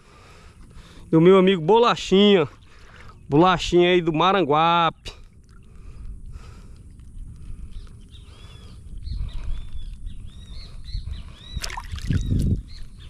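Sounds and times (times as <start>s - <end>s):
birds chirping: 0.0s - 13.0s
steady low rumble: 5.2s - 13.0s.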